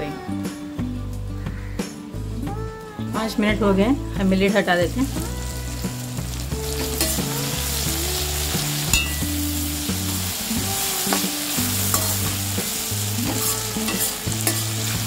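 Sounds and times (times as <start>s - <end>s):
vegetables sizzling in oil: 4.3s - 15.0s.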